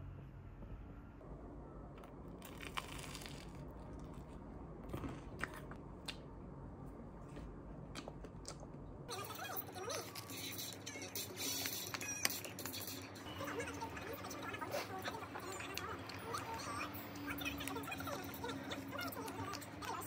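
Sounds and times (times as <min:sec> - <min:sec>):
person chewing crisp pastry: 0:02.0 - 0:06.3, 0:07.2 - 0:08.8.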